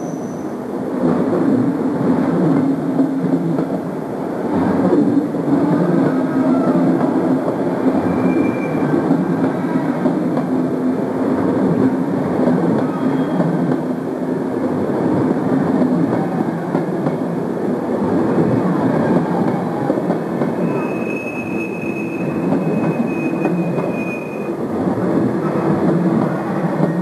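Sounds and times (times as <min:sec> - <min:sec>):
wheel squeal: 0:00.0 - 0:00.6, 0:08.0 - 0:09.0, 0:20.5 - 0:24.6
train wheels rumbling on rails: 0:00.0 - 0:27.0.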